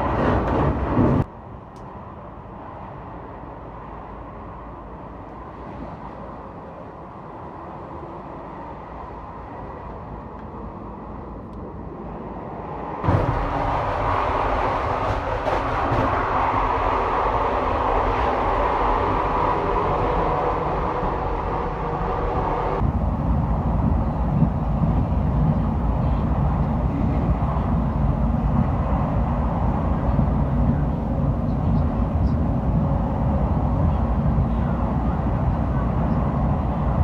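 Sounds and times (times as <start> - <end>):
electric train rumbling on rails: 0.0 - 37.0.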